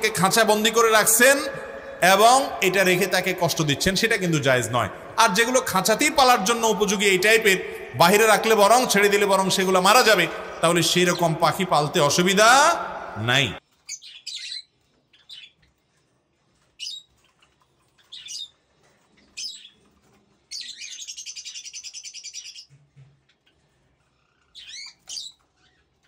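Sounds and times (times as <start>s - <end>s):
small birds chirping: 13.7s - 26.0s
bird trill: 13.8s - 15.7s, 16.8s - 18.6s, 19.2s - 19.9s, 20.5s - 22.7s, 24.2s - 25.9s.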